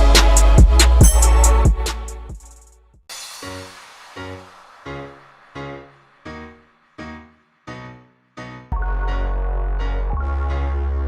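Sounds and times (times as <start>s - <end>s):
synthesizer chords: 0.0s - 2.6s, 8.7s - 11.0s
heavy bass: 0.0s - 2.7s, 8.7s - 11.0s.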